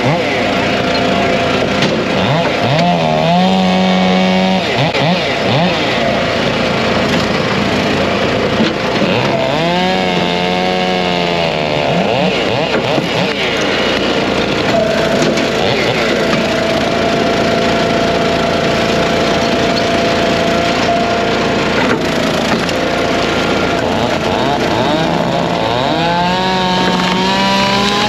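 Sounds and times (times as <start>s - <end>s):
chainsaw revving: 0.0s - 28.0s
chainsaws running: 0.0s - 28.0s
small engines running: 0.0s - 28.0s.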